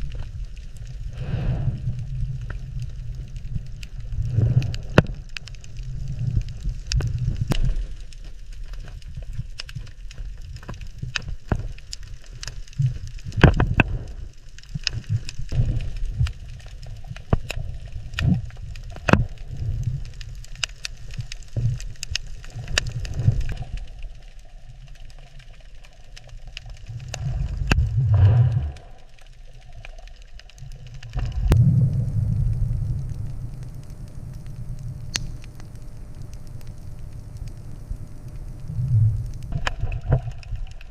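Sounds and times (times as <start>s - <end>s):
low uneven rumble: 0.0s - 40.9s
sharp clicks and crackles: 0.0s - 40.9s.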